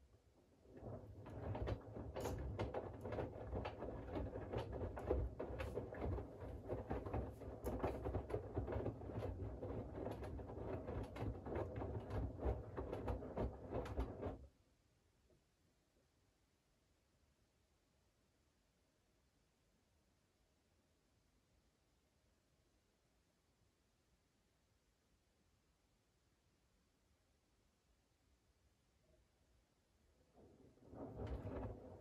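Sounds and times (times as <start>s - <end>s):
laundry tumbling in washing machine: 0.4s - 14.5s, 30.3s - 32.0s
washing machine low hum: 0.4s - 14.5s, 30.3s - 32.0s.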